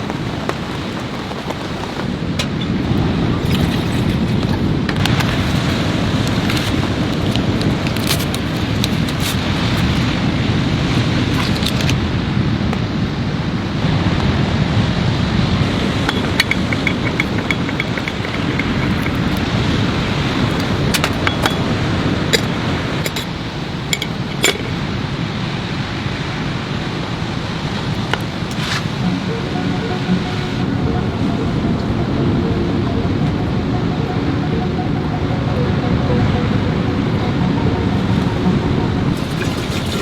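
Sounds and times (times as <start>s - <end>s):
rain: 0.0s - 33.8s, 38.0s - 40.0s
wind: 0.0s - 40.0s
clinks of small hard objects: 16.1s - 19.6s, 24.0s - 24.8s.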